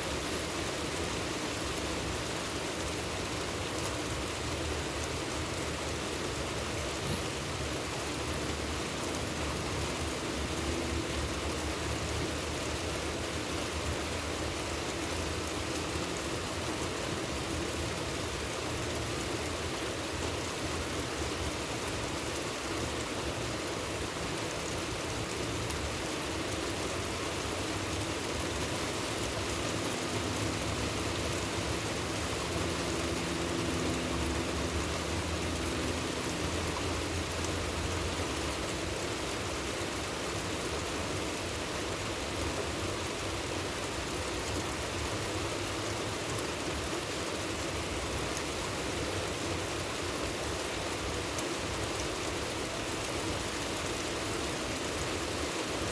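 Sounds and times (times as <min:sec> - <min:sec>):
rain and running water: 0:00.0 - 0:55.9.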